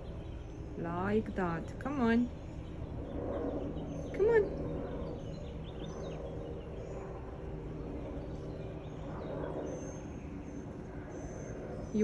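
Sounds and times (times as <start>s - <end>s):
small birds chirping: 0.0s - 12.0s
steady low hum: 0.0s - 12.0s.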